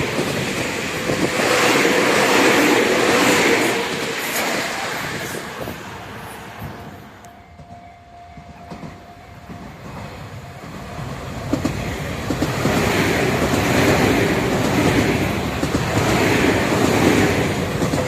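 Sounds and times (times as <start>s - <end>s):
train running on rails: 0.0s - 18.0s
wheels clicking over rail joints: 11.4s - 18.0s.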